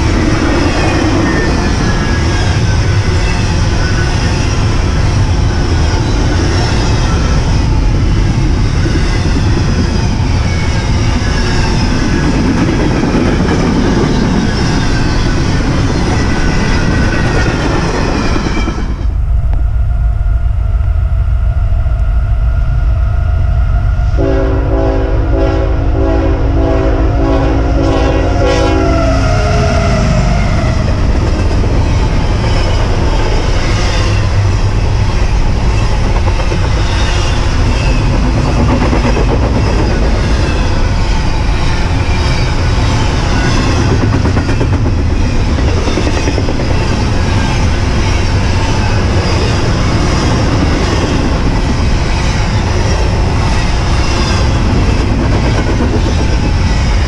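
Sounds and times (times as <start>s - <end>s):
train rumbling past: 0.0s - 57.0s
multi-note train horn: 24.0s - 30.3s.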